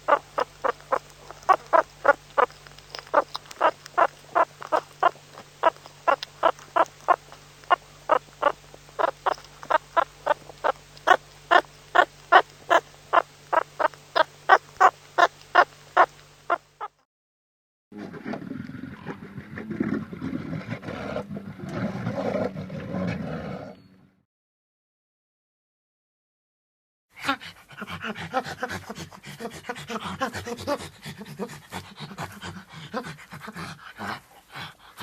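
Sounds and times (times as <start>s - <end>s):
animal calling in short calls: 0.0s - 17.0s
faint steady hum: 0.0s - 17.0s.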